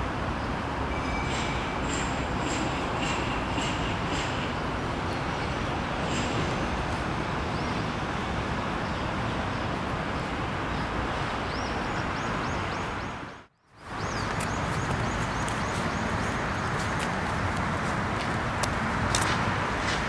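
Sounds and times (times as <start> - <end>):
outdoor background noise: 0.0 - 20.0
bird chirping: 13.8 - 17.6.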